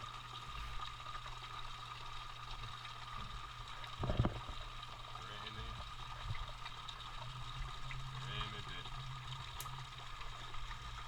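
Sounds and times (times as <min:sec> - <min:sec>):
rainwater running off a roof: 0:00.0 - 0:11.0.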